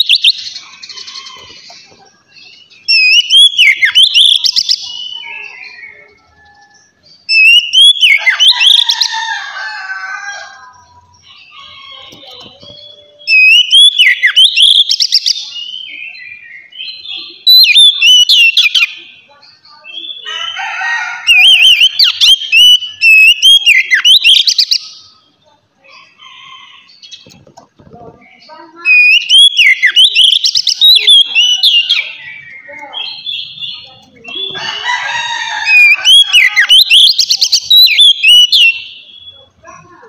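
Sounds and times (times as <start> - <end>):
bird singing whistled notes: 0.0 - 1.6, 2.4 - 8.8, 11.2 - 19.0, 21.4 - 25.2, 28.8 - 34.6, 35.7 - 39.5
bird chattering: 0.0 - 9.1, 10.7 - 40.0.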